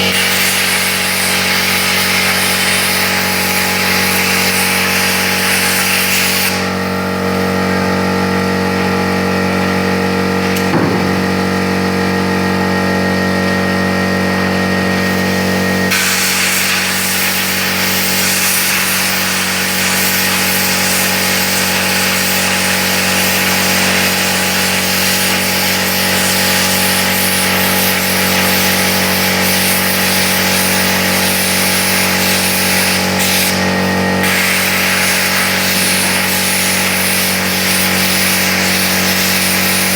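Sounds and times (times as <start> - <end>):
plasma cutter hissing: 0.0 - 6.9, 15.0 - 39.9
steady hum: 6.5 - 20.0.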